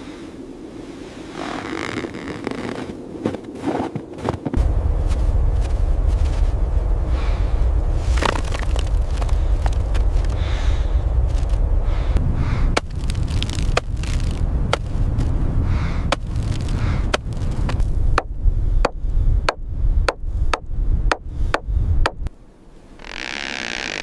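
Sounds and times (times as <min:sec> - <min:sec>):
steady low rumble: 0:04.4 - 0:23.0.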